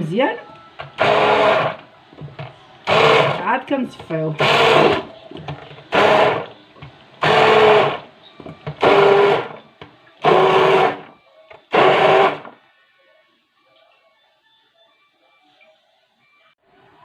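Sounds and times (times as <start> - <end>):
electric blender pulsing: 1.0 - 1.8, 2.8 - 3.5, 4.4 - 5.1, 5.9 - 6.5, 7.2 - 8.1, 8.7 - 9.6, 10.2 - 11.1, 11.7 - 12.6.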